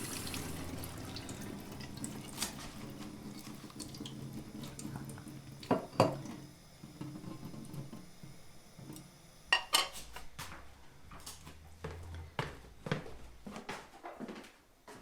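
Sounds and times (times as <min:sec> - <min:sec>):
dishes and pots clinking: 0:05.6 - 0:06.4, 0:09.5 - 0:10.1.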